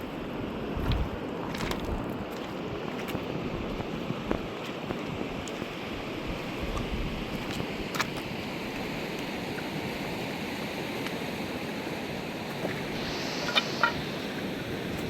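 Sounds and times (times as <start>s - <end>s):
mountain river rushing: 0.2s - 15.0s.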